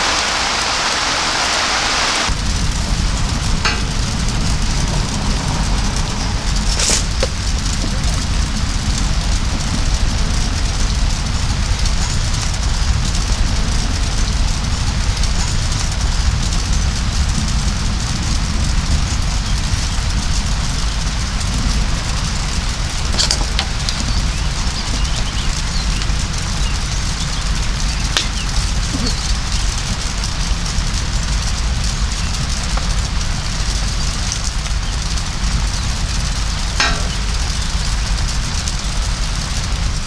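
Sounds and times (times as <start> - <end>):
heavy rain pouring: 0.0 - 40.0
deep drumming rumble: 2.3 - 40.0.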